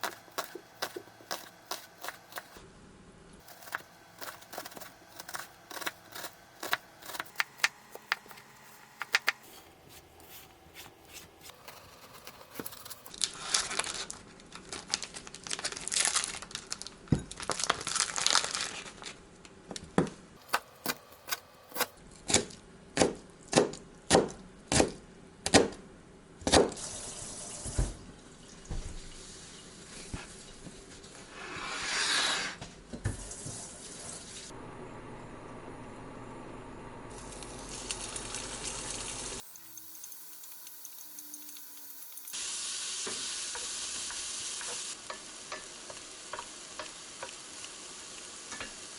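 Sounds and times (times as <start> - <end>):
rustling and crinkling: 8.6 - 19.2.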